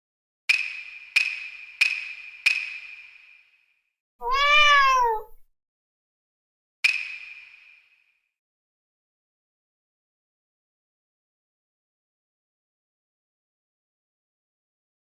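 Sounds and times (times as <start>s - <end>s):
cat meowing: 4.2s - 5.4s.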